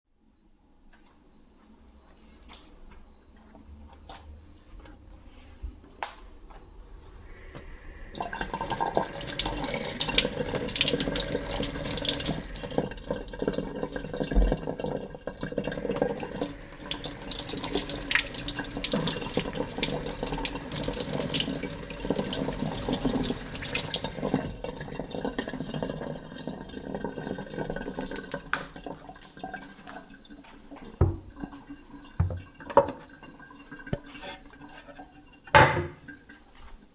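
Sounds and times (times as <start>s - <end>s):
tap running water into sink: 7.3s - 36.3s.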